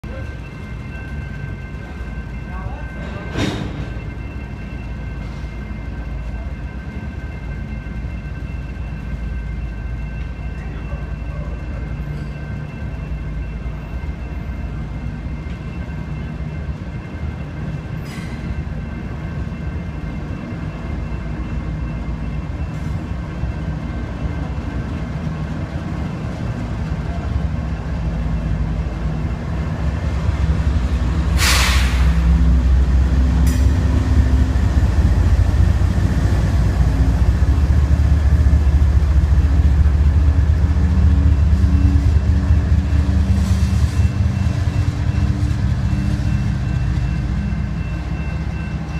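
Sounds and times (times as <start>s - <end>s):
diesel locomotive engine drone: 0.0s - 48.9s
rumble of freight train wheels: 0.0s - 48.9s
brief hiss: 31.4s - 32.2s.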